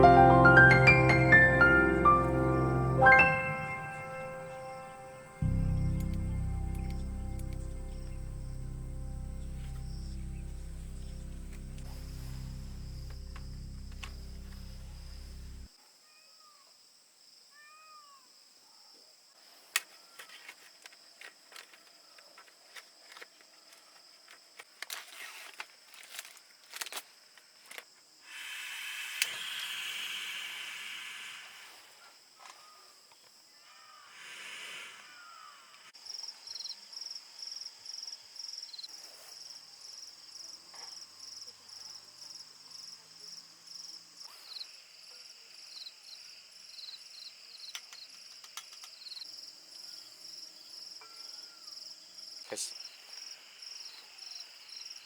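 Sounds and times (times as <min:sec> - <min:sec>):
hiss: 0:28.2 - 0:32.2, 0:34.0 - 0:35.9.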